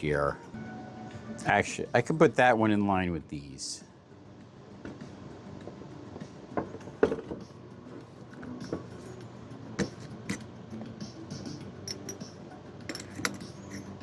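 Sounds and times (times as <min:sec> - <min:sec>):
tools knocking and clinking: 0:09.8 - 0:10.5, 0:11.8 - 0:13.8.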